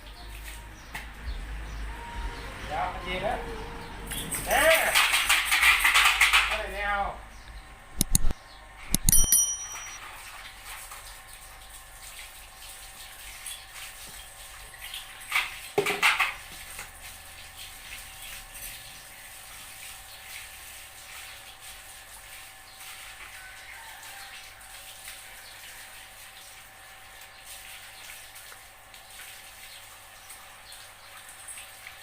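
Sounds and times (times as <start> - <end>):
sharp knock with ringing: 8.9 - 10.0.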